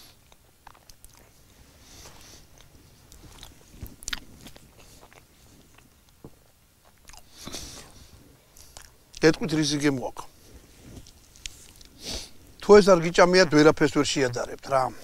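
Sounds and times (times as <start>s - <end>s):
person chewing crunchy food: 0.0s - 9.2s, 10.5s - 12.3s.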